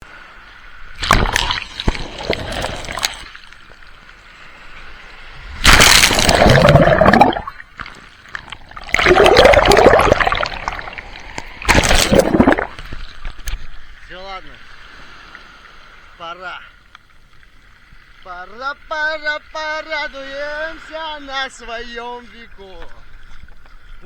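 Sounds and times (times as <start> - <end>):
sea waves breaking on shore: 0.0 - 23.2.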